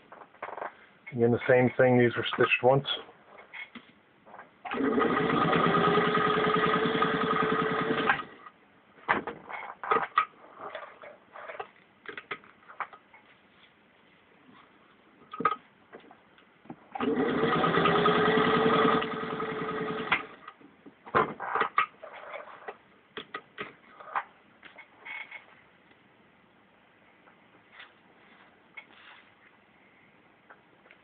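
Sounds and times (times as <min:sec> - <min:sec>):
sewing machine stitching: 0:04.6 - 0:08.4, 0:16.9 - 0:20.5.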